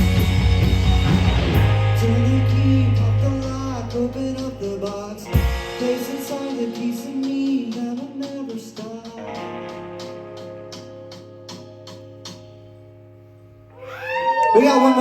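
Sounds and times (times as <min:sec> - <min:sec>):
live rock band: 0:00.0 - 0:12.8
person singing: 0:00.6 - 0:09.8.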